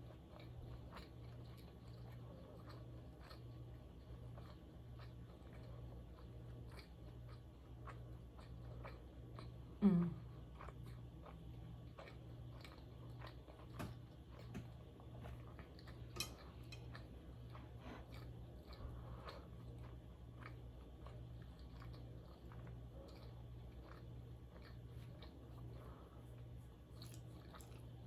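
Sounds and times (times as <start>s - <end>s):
close-miked chewing: 0.0s - 28.0s
faint low hum: 0.0s - 28.0s.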